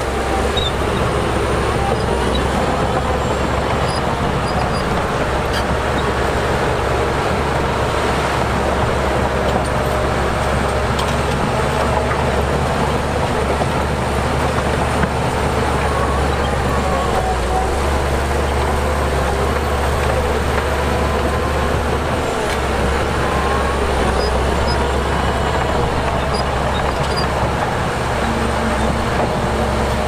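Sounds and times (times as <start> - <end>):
heavy diesel machinery engine drone: 0.0 - 30.0.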